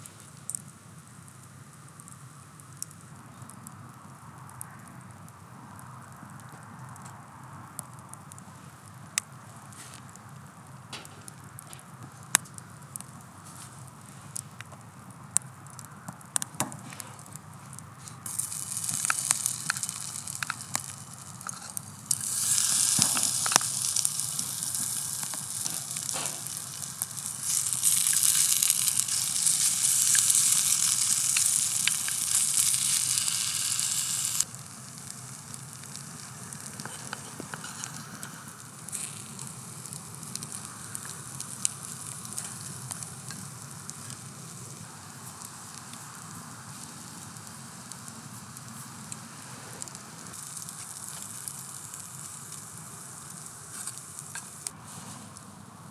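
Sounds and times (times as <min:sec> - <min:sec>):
campfire crackling and popping: 0:00.0 - 0:55.6
food sizzling in a pan: 0:18.2 - 0:55.2.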